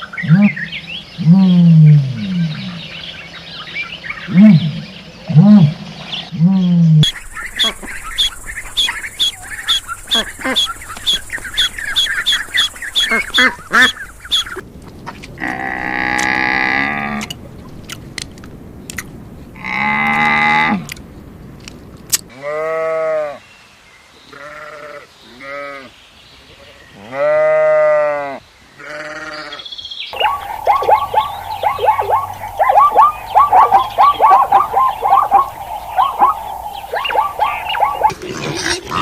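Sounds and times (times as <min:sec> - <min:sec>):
rapid high chirping calls: 0:07.0 - 0:14.6, 0:30.2 - 0:38.8
livestock bleating: 0:22.3 - 0:23.4, 0:24.3 - 0:25.9, 0:27.0 - 0:29.6.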